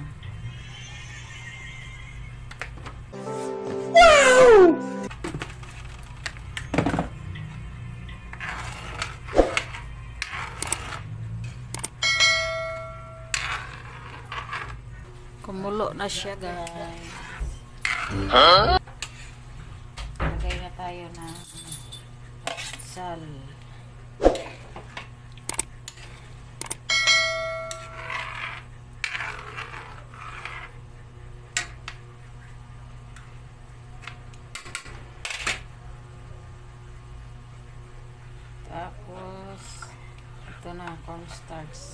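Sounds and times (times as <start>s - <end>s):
short swooping sounds: 9.3s - 9.6s, 24.2s - 24.6s
pot ringing like a bell: 12.0s - 13.3s, 26.9s - 28.0s.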